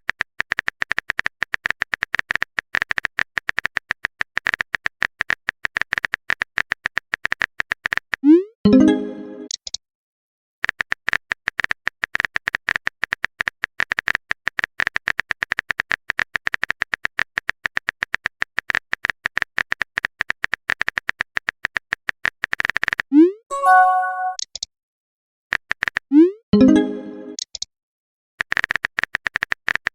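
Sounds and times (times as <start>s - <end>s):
notification chime: 8.7s - 9.5s, 23.5s - 24.4s, 26.6s - 27.4s
keyboard typing clicks: 23.5s - 24.6s.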